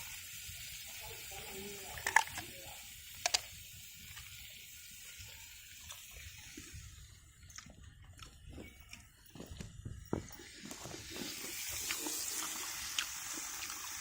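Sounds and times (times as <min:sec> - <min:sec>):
food sizzling in a pan: 0:00.0 - 0:07.5, 0:10.3 - 0:14.0.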